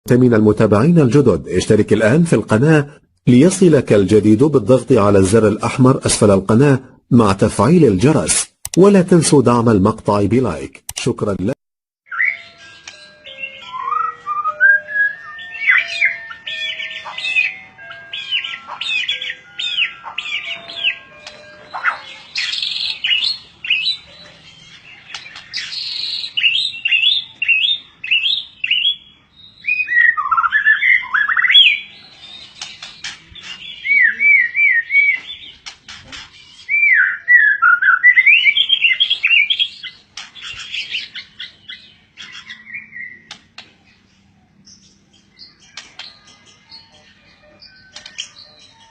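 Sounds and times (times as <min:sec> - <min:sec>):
songbird singing: 0:12.1 - 0:48.9.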